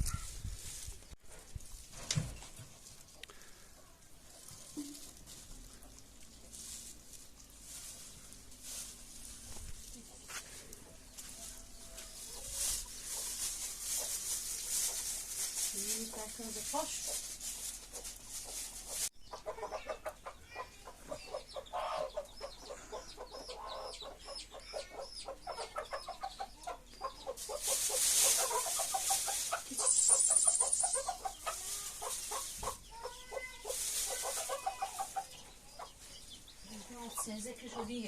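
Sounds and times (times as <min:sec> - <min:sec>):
chickens clucking: 0:10.0 - 0:15.4, 0:16.2 - 0:38.0
hissing noise: 0:29.6 - 0:31.1
rapid high peeps: 0:29.6 - 0:31.4.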